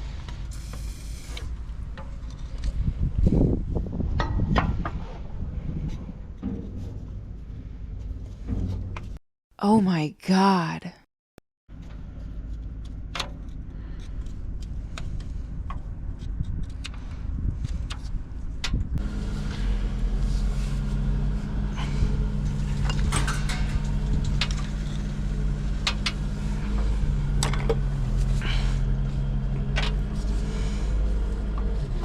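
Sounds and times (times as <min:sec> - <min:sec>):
engine running: 0:18.2 - 0:32.0.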